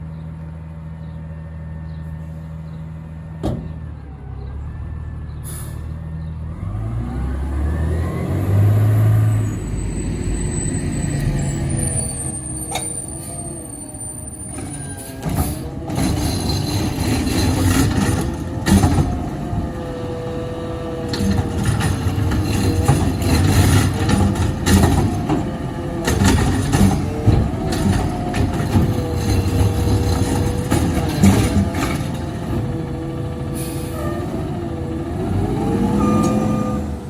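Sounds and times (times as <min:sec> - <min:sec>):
garbage truck engine whining: 0:01.0 - 0:37.0
sharp clanks and knocks: 0:03.4 - 0:03.8, 0:14.5 - 0:20.3, 0:20.9 - 0:32.8.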